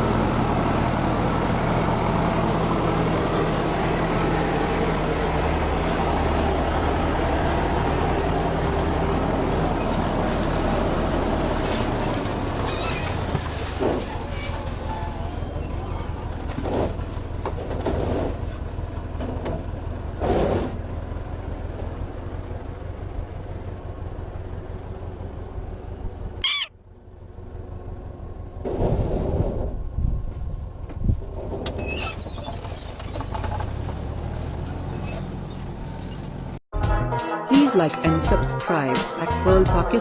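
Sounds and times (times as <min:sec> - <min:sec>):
vehicle engine running: 0:00.0 - 0:28.9
bird calling: 0:26.4 - 0:26.8.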